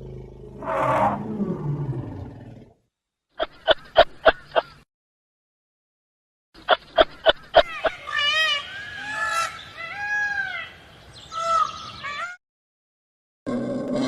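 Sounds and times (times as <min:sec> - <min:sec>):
bird calls rising and falling: 0:06.6 - 0:12.4.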